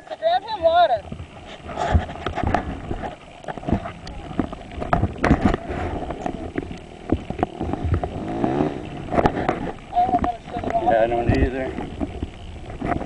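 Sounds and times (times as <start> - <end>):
low rumbling background: 0.0 - 13.0
knocks and bumps on microphone: 0.6 - 8.1.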